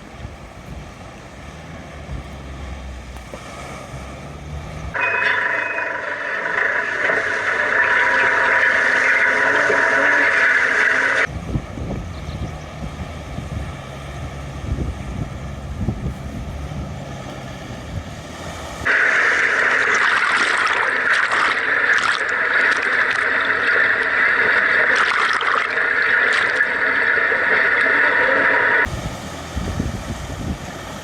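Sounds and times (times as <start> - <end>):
engine running at low revs: 0.0 - 20.2, 26.8 - 31.0
rushing and splashing water: 0.0 - 31.0.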